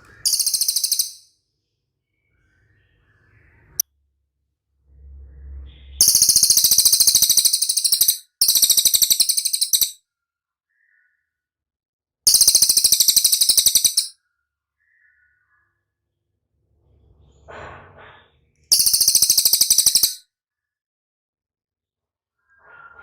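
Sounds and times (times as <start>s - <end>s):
bird high-pitched trilling: 0.1s - 1.3s, 6.0s - 10.0s, 12.3s - 14.1s, 18.7s - 20.2s.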